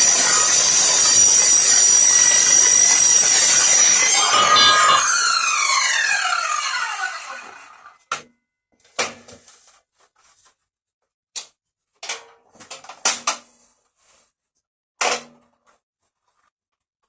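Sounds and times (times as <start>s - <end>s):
circular saw motor winding down: 0.0s - 8.0s.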